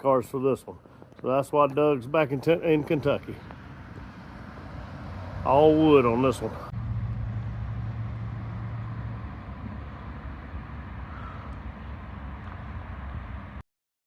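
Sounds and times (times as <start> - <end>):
truck engine rumbling: 0.0 - 13.6
low hum: 6.5 - 13.6.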